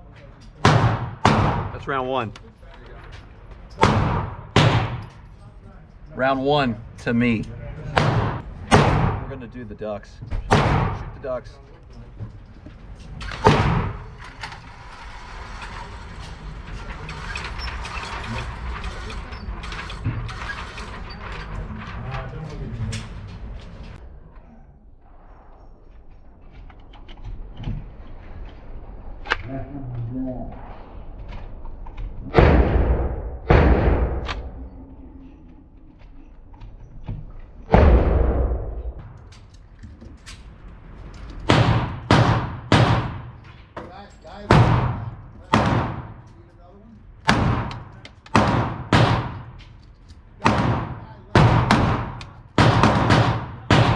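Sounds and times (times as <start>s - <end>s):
pistol shot: 0.6s - 1.8s, 3.8s - 5.2s, 8.0s - 9.3s, 10.5s - 11.2s, 32.3s - 34.6s, 37.7s - 39.0s, 41.5s - 43.4s, 44.5s - 46.2s, 47.3s - 49.5s, 50.4s - 53.9s
mechanical rattling with clicks: 10.2s - 24.0s.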